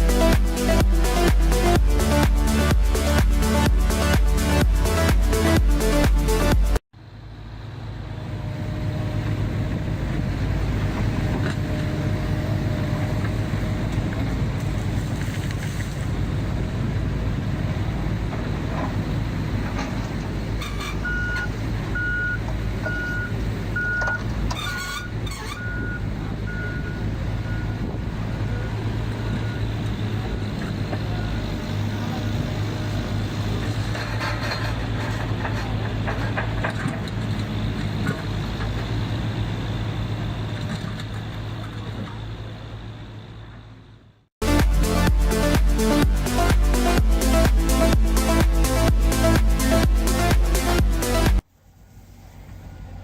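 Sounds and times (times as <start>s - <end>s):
music: 0.0s - 6.8s, 44.4s - 51.4s
excavator diesel engine running: 0.0s - 43.8s, 44.4s - 53.0s
travel alarm beeping: 21.0s - 24.2s, 25.6s - 27.9s.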